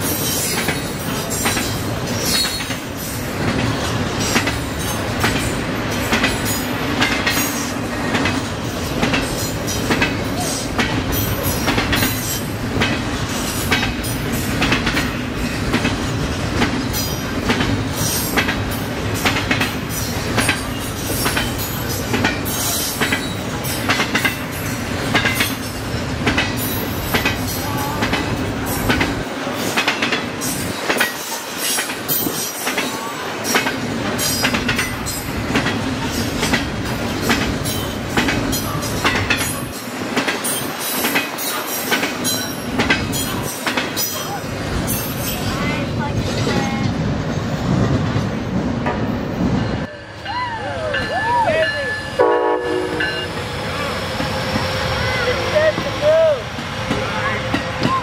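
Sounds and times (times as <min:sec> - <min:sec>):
train wheels clicking over joints: 0:00.0 - 0:49.3
rolling train rumble: 0:00.0 - 0:58.0.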